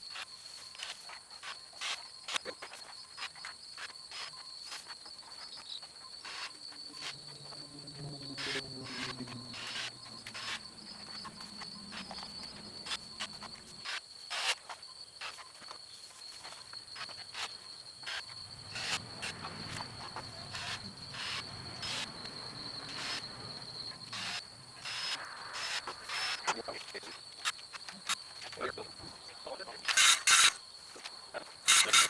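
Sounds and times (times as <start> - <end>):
high-pitched insect trill: 0.0 - 32.0.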